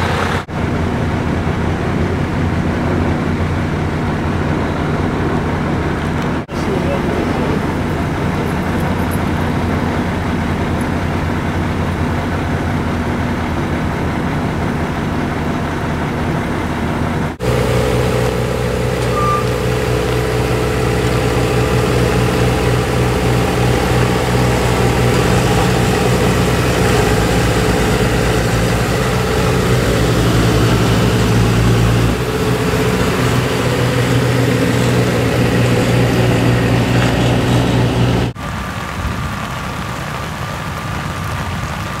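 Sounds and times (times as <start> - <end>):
road noise: 0.0 - 42.0
vehicle engine hum: 0.0 - 42.0.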